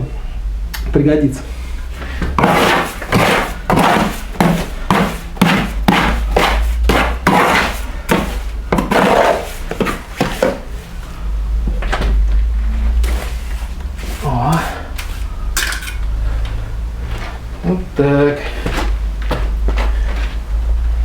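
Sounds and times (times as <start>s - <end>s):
tool scraping wet mortar: 2.2s - 10.7s, 13.0s - 15.3s.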